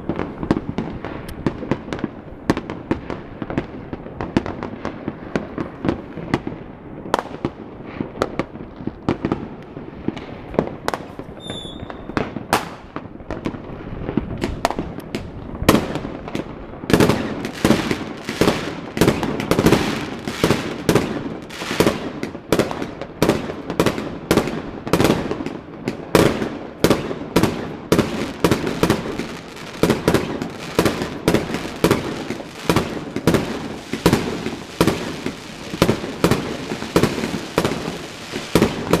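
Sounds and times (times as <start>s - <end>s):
fireworks bangs and crackles: 0.0s - 39.0s
high firework whistle: 11.4s - 12.3s.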